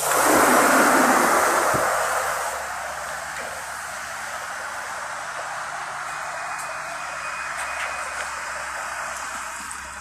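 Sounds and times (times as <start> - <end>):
rain on wet pavement: 0.0 - 6.2
bus engine idling: 0.0 - 10.0.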